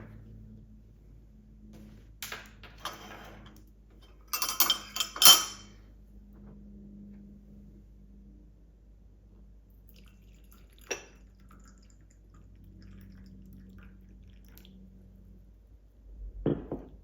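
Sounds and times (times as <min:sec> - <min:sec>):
dishes and cutlery clinking: 0:02.8 - 0:05.7.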